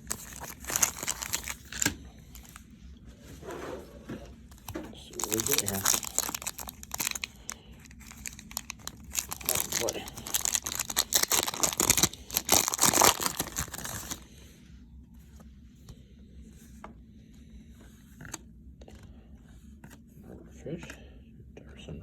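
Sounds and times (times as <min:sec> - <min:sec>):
card wrapper tearing: 0:00.0 - 0:02.6, 0:04.5 - 0:14.2.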